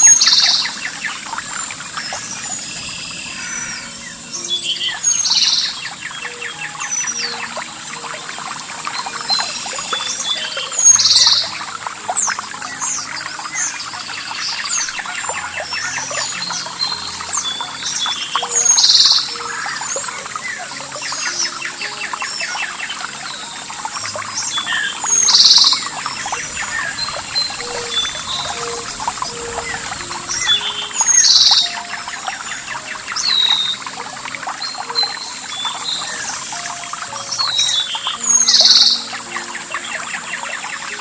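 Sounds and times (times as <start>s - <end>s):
birds chirping and singing: 0.0s - 41.0s
trickling water: 0.0s - 41.0s.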